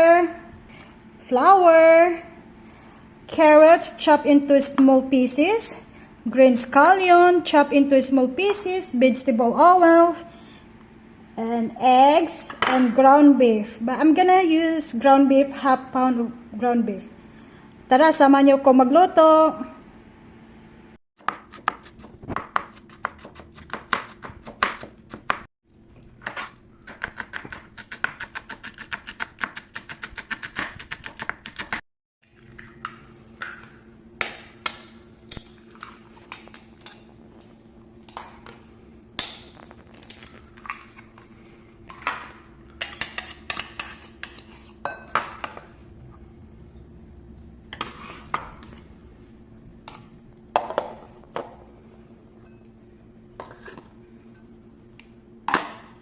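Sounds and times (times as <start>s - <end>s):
low steady hum: 32.2s - 56.0s.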